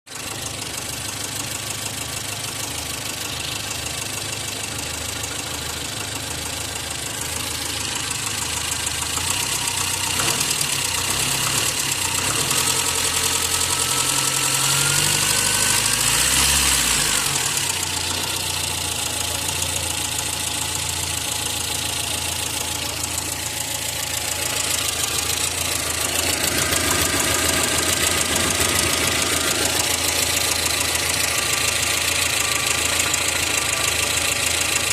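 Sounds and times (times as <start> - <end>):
car engine idling and revving: 0.1 - 34.9.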